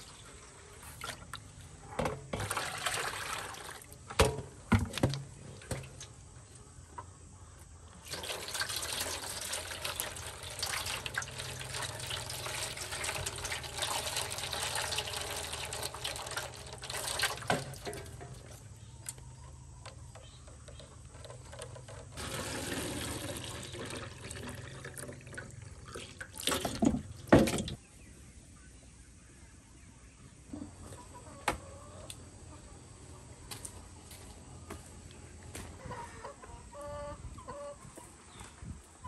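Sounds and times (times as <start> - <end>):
running water: 8.0 - 18.5, 22.2 - 27.8.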